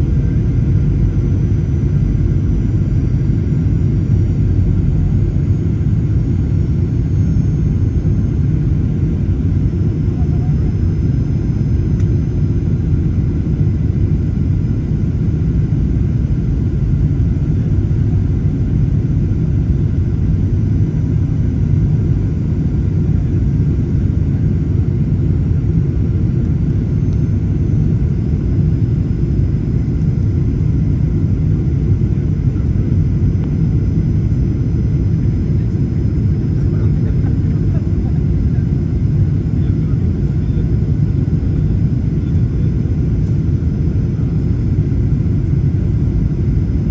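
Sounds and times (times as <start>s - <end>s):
faint steady whining tones: 0.0s - 46.9s
jet cabin engine rumble: 0.0s - 46.9s.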